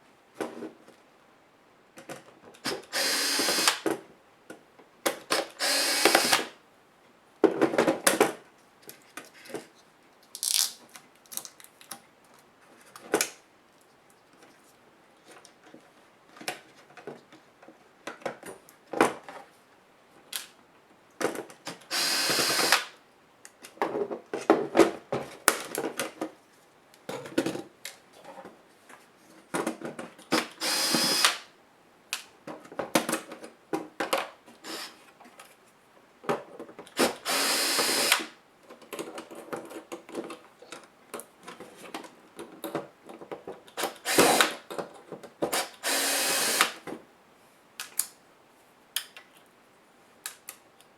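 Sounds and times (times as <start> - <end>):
electric screwdriver whirring: 2.7 - 3.8, 5.6 - 6.5, 21.9 - 22.9, 30.6 - 31.5, 34.7 - 35.0, 37.0 - 38.3, 43.8 - 44.6, 45.6 - 46.8.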